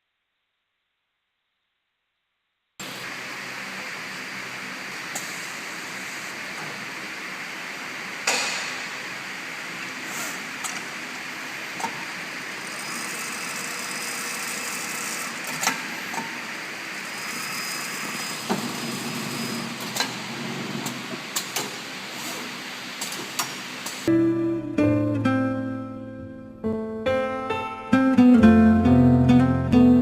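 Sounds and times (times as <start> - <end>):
sewing machine whirring: 9.0 - 24.1.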